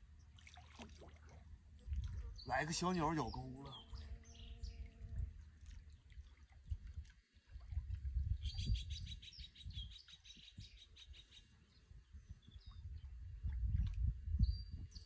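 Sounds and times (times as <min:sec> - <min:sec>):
small songbird chirping: 0:02.1 - 0:05.0, 0:08.3 - 0:13.2, 0:14.4 - 0:15.0.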